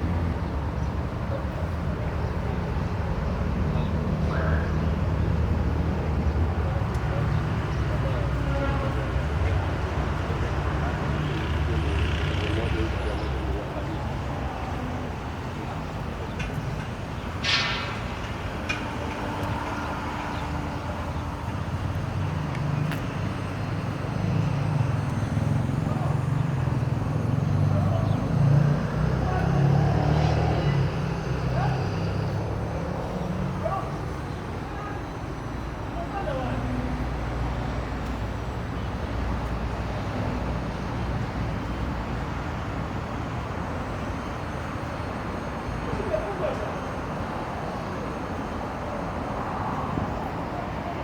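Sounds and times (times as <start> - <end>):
vehicle engine idling: 0.0 - 28.3.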